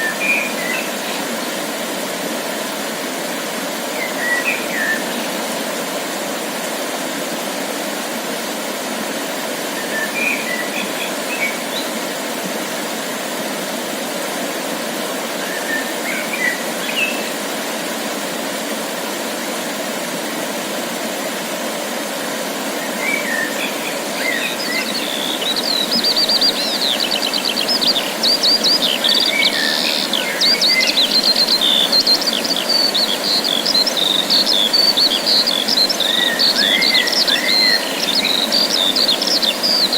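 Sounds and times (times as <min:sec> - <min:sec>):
songbirds singing: 0:22.8 - 0:39.9.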